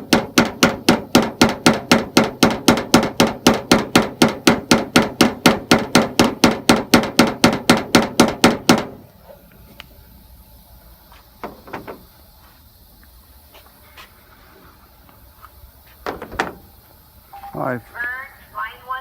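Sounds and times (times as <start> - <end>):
hammer tapping sheet metal: 0.0 - 9.0.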